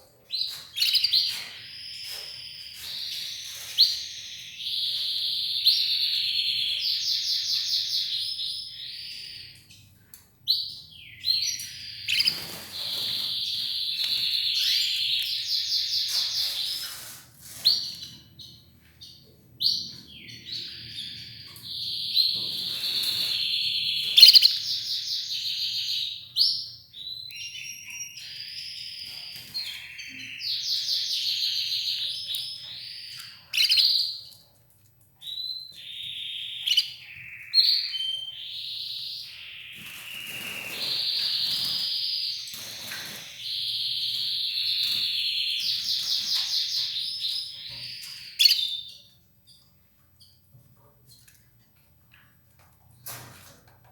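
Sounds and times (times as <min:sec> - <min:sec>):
canary singing trills: 0:00.3 - 0:34.4, 0:35.2 - 0:50.5.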